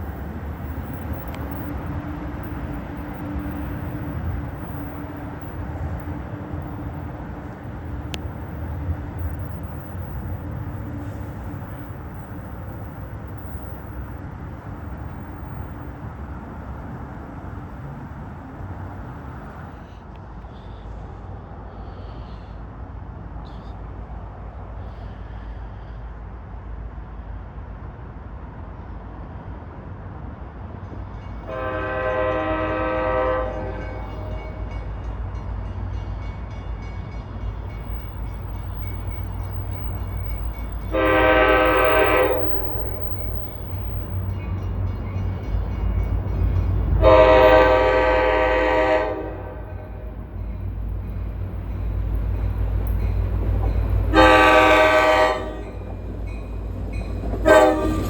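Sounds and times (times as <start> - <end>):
train rumble: 0.0 - 58.0
train horn blasts: 31.4 - 34.6, 40.8 - 43.8, 46.4 - 50.2, 53.8 - 58.0.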